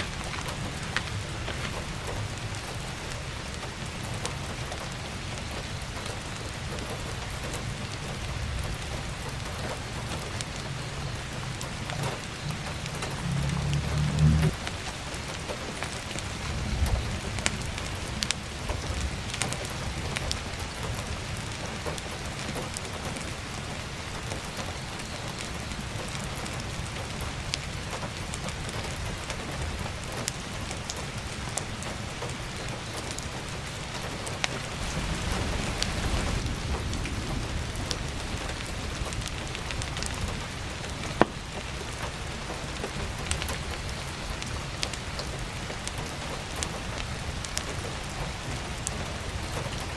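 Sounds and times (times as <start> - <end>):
firewood crackling and popping: 0.0 - 49.9
heavy rain on a roof: 0.0 - 49.9
low rumble: 11.2 - 14.8.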